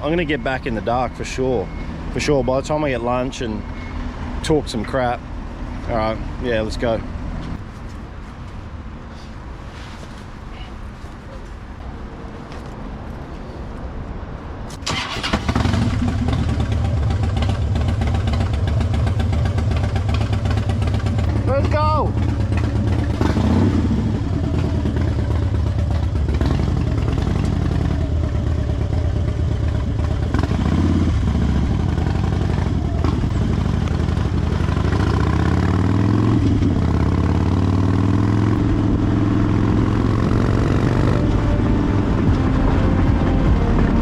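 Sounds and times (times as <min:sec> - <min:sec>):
motorcycle engine accelerating: 0:14.8 - 0:44.0.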